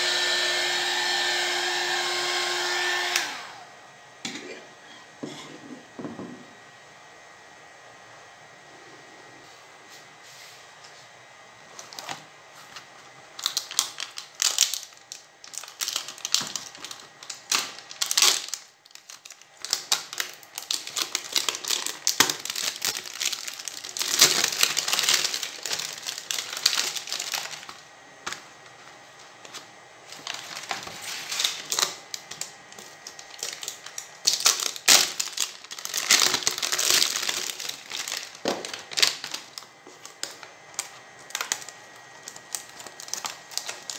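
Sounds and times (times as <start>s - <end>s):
plastic film crinkling: 11.7s - 43.9s.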